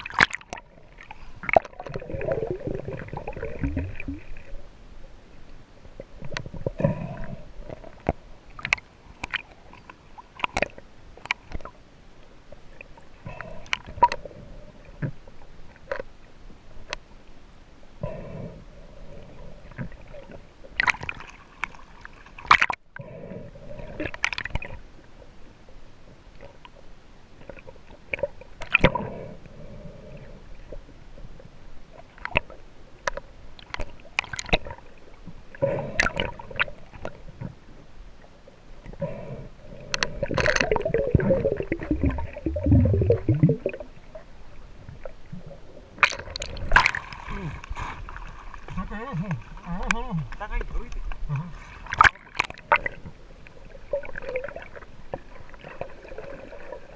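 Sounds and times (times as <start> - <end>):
splashes: 0.0 - 4.4, 46.0 - 50.2
gurgling bubbles: 0.0 - 4.5, 40.0 - 44.3, 51.9 - 56.9
water gurgling and sloshing: 0.0 - 56.9.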